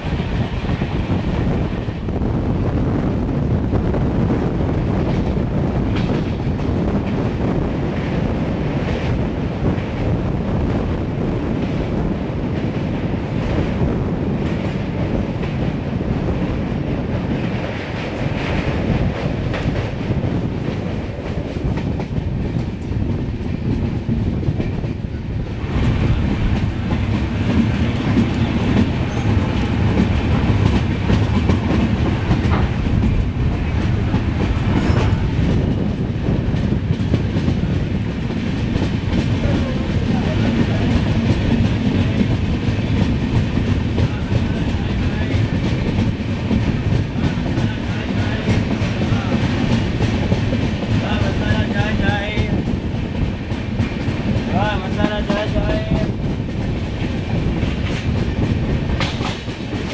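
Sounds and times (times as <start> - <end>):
steel wheels clattering over rails: 12.5 - 59.9.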